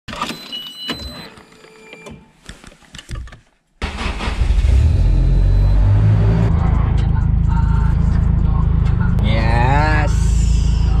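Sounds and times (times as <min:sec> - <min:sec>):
car engine starting and rumbling: 0:03.8 - 0:11.0.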